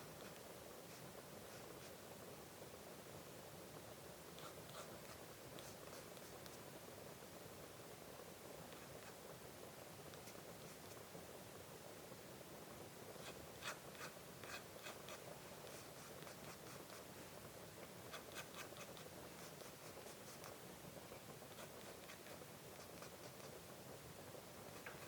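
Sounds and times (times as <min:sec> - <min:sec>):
pen nib scratching on paper: 0:00.0 - 0:02.0, 0:04.3 - 0:06.7, 0:08.7 - 0:09.2, 0:10.1 - 0:11.1, 0:13.1 - 0:23.6.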